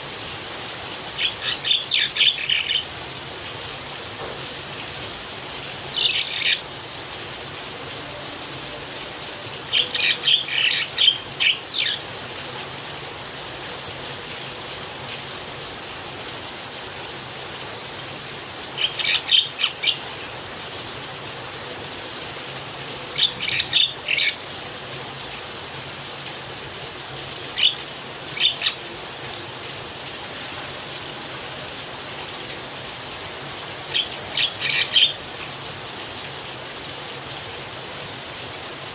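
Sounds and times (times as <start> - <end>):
rain falling: 0.0 - 38.9
bird calling sharp notes: 1.2 - 3.0, 5.9 - 6.7, 9.6 - 12.0, 18.8 - 20.4, 23.2 - 24.4, 27.6 - 29.0, 33.9 - 35.2.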